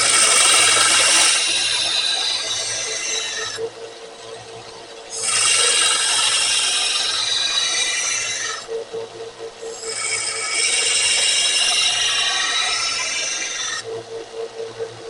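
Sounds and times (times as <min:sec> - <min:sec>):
grinder motor hum: 0:00.0 - 0:15.0.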